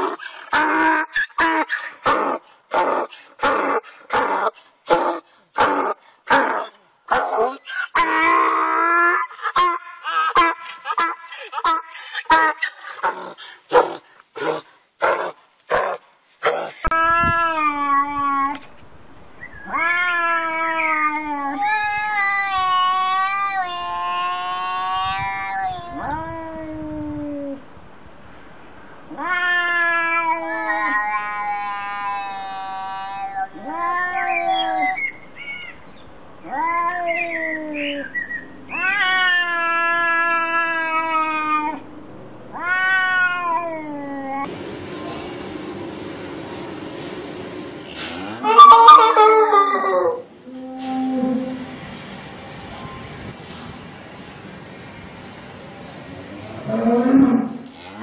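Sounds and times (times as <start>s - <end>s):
donkey braying: 0.0s - 15.3s, 48.2s - 51.7s
cats yowling: 19.6s - 27.6s, 29.1s - 35.0s, 36.4s - 38.0s, 38.7s - 41.8s, 42.6s - 44.5s, 48.4s - 51.6s.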